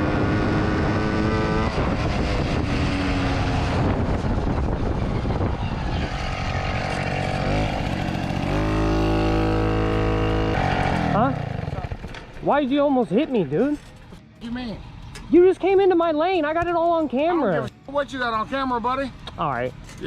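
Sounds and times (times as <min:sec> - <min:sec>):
motorcycle engine running: 0:00.0 - 0:12.5
road and wind noise: 0:00.0 - 0:20.0.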